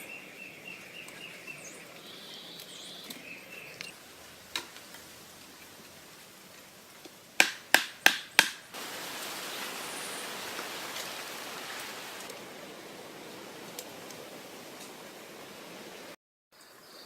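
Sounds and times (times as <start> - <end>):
sharp knocks: 7.4 - 8.6
running water hissing: 8.6 - 16.2.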